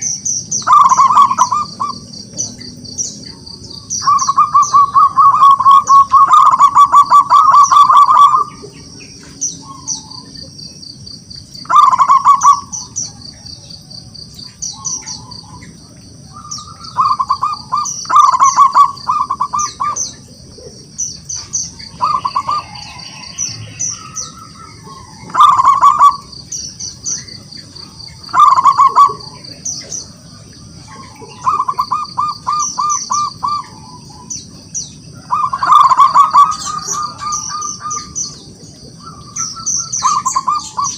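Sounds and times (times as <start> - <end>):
small birds chirping: 0.0 - 40.9
dove cooing in stuttering bursts: 0.6 - 2.1, 4.0 - 8.7, 11.6 - 12.7, 16.9 - 21.0, 21.9 - 22.8, 24.8 - 26.3, 28.3 - 29.6, 30.9 - 34.2, 35.3 - 39.3, 40.0 - 40.9.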